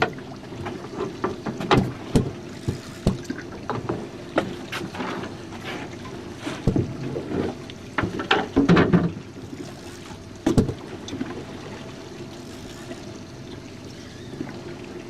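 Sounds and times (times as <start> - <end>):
water slapping against hull: 0.0 - 15.0
knocks on boat: 1.2 - 4.9, 6.6 - 7.0, 8.0 - 9.2, 10.4 - 10.8.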